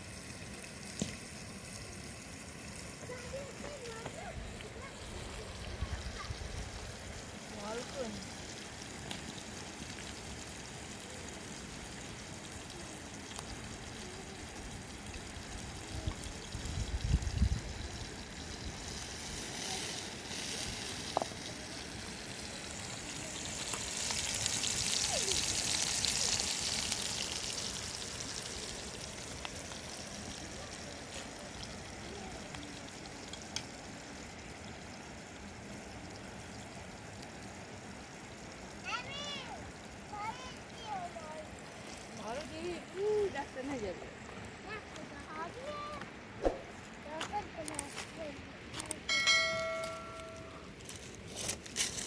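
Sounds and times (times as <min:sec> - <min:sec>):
running water hissing: 0:00.0 - 0:52.0
low bumps: 0:46.4 - 0:46.9.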